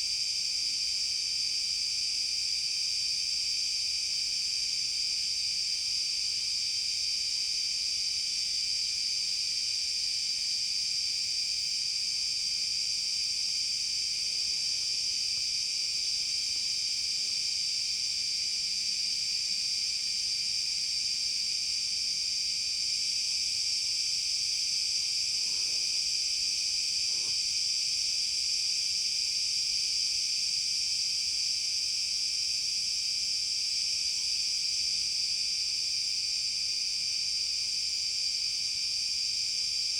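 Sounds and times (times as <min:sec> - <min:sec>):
forest insects chorus: 0:21.4 - 0:31.0.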